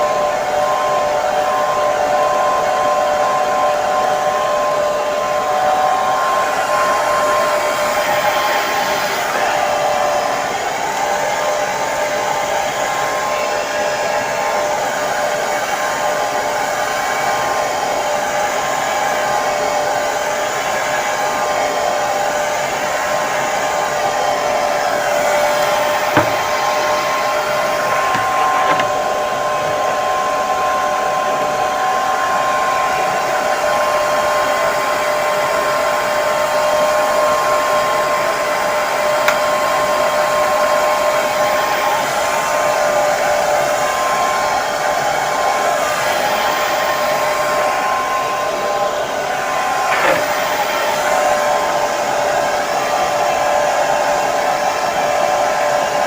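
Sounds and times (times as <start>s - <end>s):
hair dryer running: 0.0s - 56.0s
hair dryer click: 25.4s - 29.9s, 39.2s - 39.7s, 49.9s - 50.8s.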